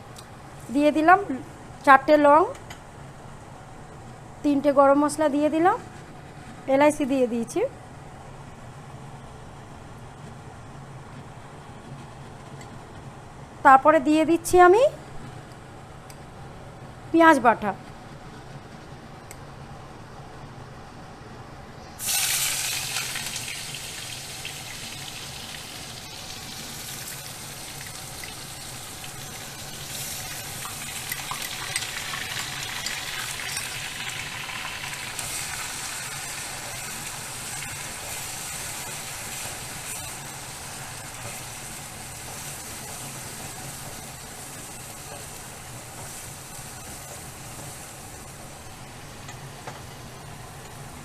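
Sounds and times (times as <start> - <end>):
food sizzling in hot oil: 22.0 - 49.1.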